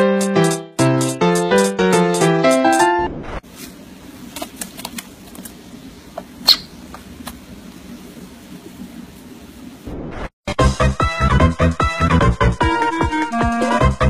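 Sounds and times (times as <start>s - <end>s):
parrot squeak: 6.5s - 6.8s.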